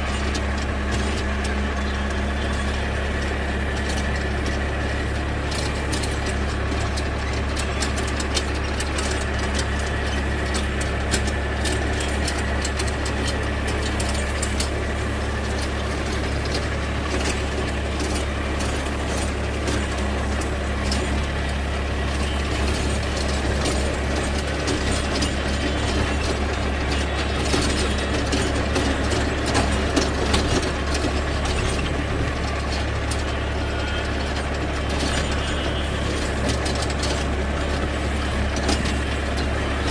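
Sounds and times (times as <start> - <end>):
mechanical clattering and rattling: 0.0 - 39.9
tractor diesel engine drone: 0.0 - 39.9.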